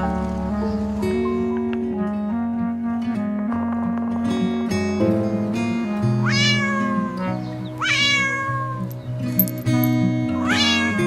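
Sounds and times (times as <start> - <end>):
background music: 0.0 - 11.0
cat meowing: 6.2 - 8.9, 10.4 - 11.0.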